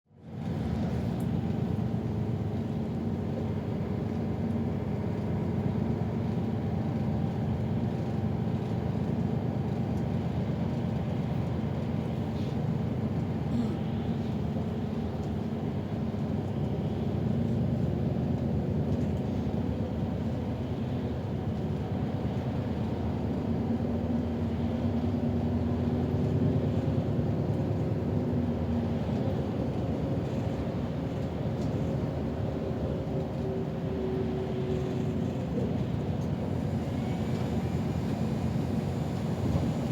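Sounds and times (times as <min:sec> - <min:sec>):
bus engine and drivetrain hum: 0:00.1 - 0:39.9.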